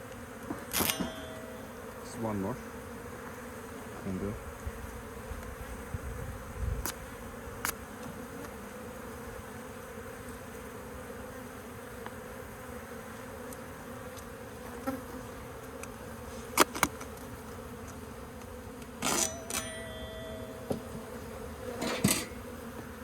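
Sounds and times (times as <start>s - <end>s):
honeybees buzzing: 0.0s - 23.0s
sharp knocks: 0.5s - 1.6s.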